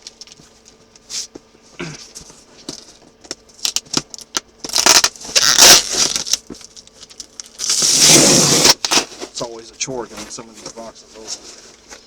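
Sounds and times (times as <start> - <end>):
cardboard box scraping and tearing: 7.6 - 9.4.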